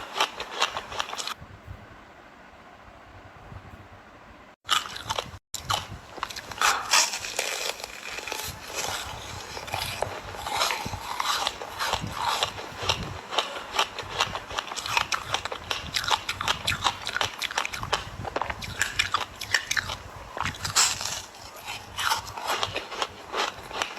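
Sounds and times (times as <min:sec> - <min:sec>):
ice crunching in mouth: 0:00.0 - 0:01.4, 0:04.7 - 0:23.9
low steady background noise: 0:00.0 - 0:23.9.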